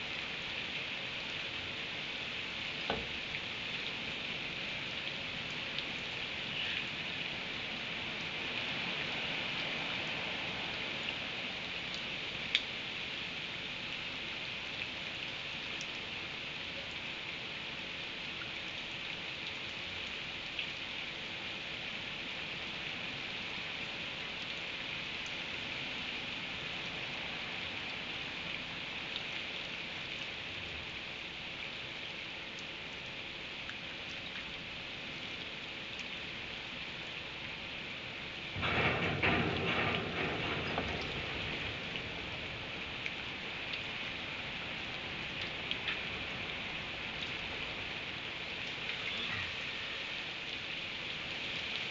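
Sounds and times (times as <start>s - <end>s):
steady rain: 0.0s - 51.9s
raindrop ticks: 2.8s - 4.3s, 4.9s - 12.9s, 14.6s - 17.1s, 18.2s - 20.8s, 23.5s - 25.5s, 31.7s - 51.9s.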